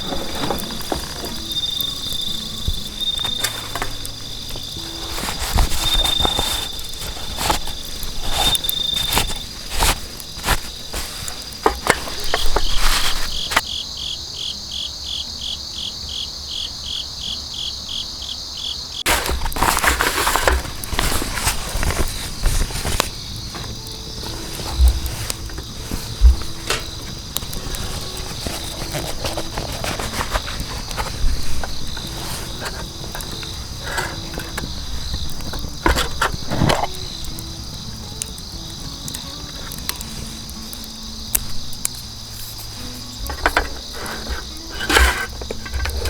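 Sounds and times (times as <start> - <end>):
pulsed insect chirp: 0.0 - 19.0
insects chirping: 0.0 - 46.0.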